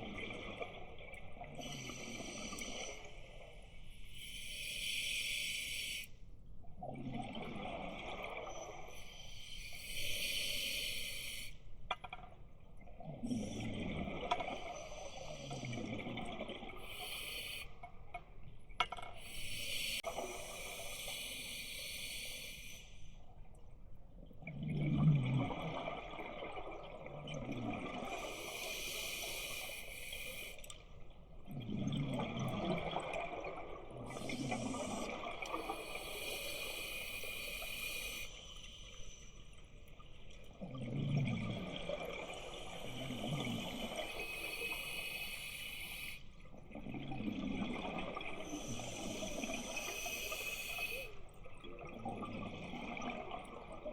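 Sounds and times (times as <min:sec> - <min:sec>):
gurgling exhaled bubbles: 0:06.8 - 0:09.0, 0:13.0 - 0:17.0, 0:24.4 - 0:28.7, 0:31.4 - 0:37.3, 0:40.5 - 0:45.2, 0:46.5 - 0:53.9
hissing regulator inhalation: 0:48.4 - 0:51.2.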